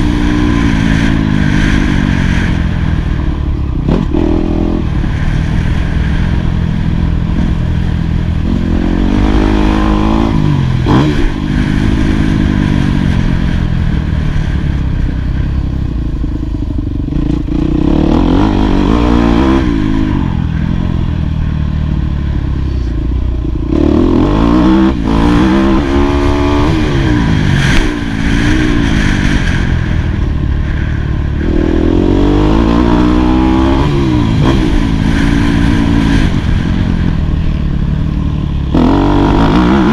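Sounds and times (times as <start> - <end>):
motocross engine revving: 8.4 - 13.6, 17.1 - 20.8, 23.7 - 37.2, 38.5 - 39.9.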